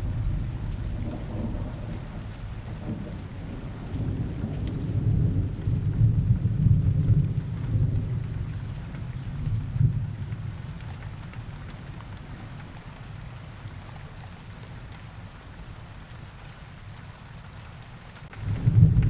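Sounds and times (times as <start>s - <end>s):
rumble of thunder: 0.0s - 11.0s, 18.3s - 19.0s
steady rain: 0.0s - 19.0s.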